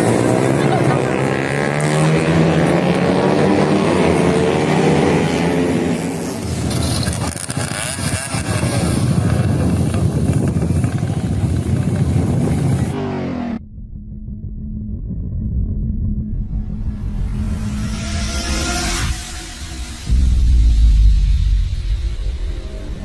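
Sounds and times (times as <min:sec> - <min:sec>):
motorcycle engine running: 0:06.2 - 0:19.0.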